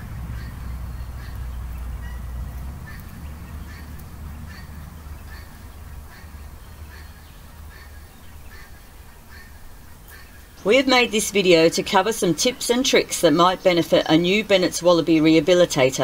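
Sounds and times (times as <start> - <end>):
low rumble: 0.0 - 8.5
bird calling: 0.0 - 15.0.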